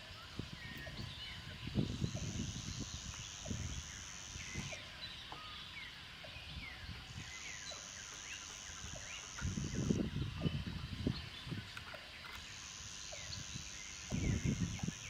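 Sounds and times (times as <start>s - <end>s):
birds chirping: 0.0s - 15.0s
high-pitched buzz: 7.8s - 10.1s.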